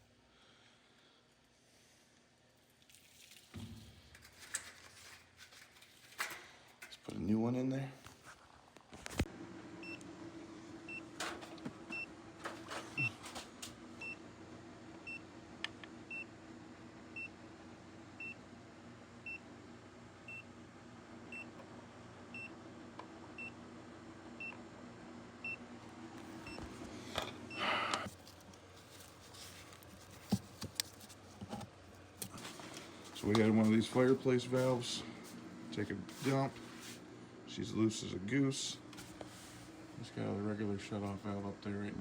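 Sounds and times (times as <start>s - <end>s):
scraping rustle: 4.2s - 6.3s
steady low hum: 9.3s - 42.0s.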